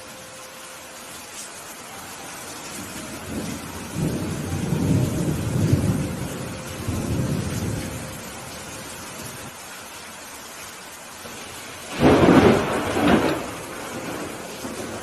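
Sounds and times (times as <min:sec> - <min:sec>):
rain hissing: 0:00.0 - 0:15.0
thunder rumbling: 0:02.7 - 0:09.5, 0:11.3 - 0:15.0.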